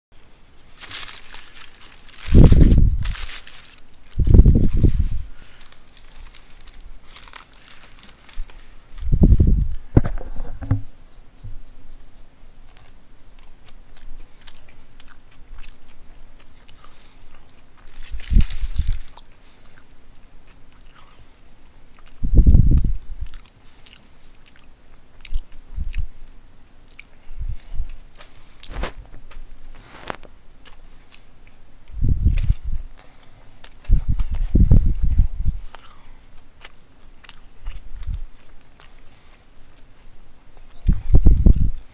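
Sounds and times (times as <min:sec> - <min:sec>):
chewing and biting sandwich: 0:00.6 - 0:09.5, 0:12.6 - 0:41.9.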